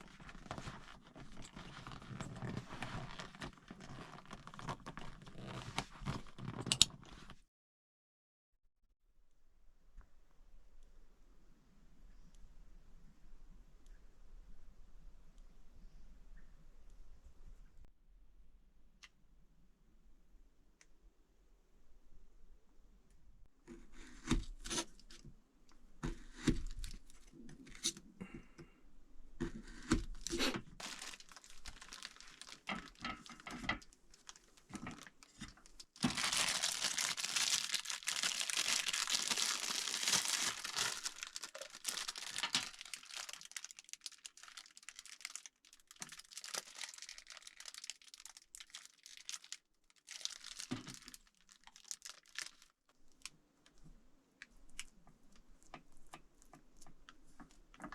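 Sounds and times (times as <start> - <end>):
plastic packaging crinkling: 0.0 - 7.3, 29.7 - 53.3.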